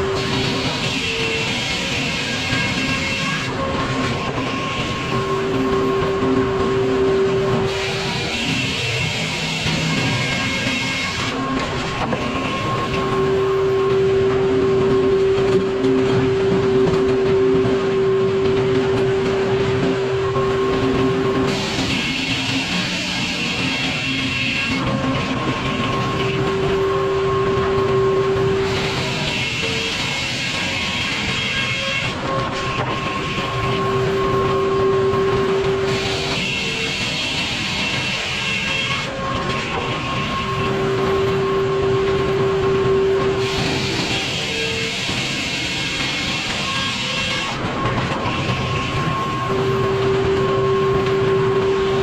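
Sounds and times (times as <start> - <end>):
high mechanical whining: 0.0 - 52.0
sawmill machinery drone: 0.0 - 52.0
strong steady hum: 0.0 - 52.0.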